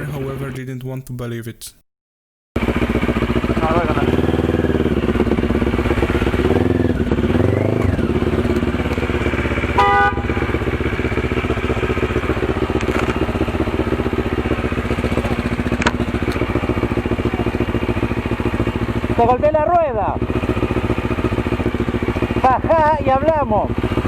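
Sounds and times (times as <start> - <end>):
motorcycle engine idling: 2.6 - 24.0
horn beep: 9.7 - 10.6.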